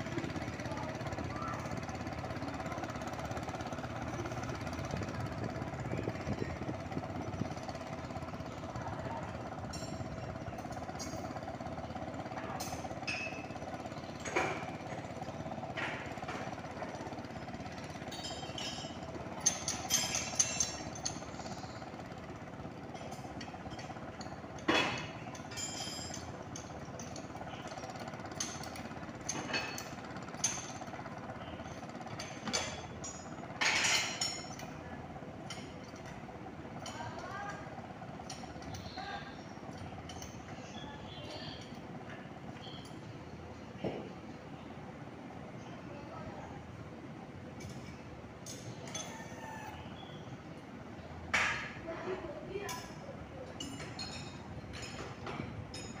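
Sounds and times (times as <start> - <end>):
tractor engine running: 0.0 - 33.6
sharp knocks and clinks: 12.5 - 13.6, 18.0 - 21.6, 23.0 - 30.9.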